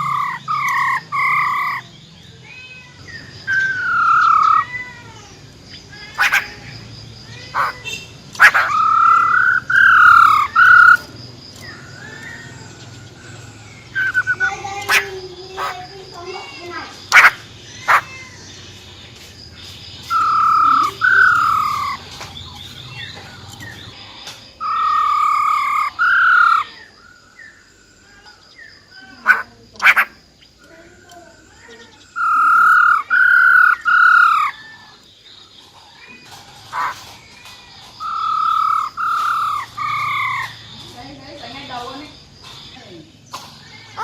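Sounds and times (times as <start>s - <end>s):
sharp bird clicks: 0.0s - 1.8s, 6.1s - 6.8s, 7.6s - 13.0s, 13.8s - 15.8s, 17.0s - 18.1s, 29.3s - 31.2s
bird calling slurred notes: 0.0s - 37.2s, 38.0s - 43.0s.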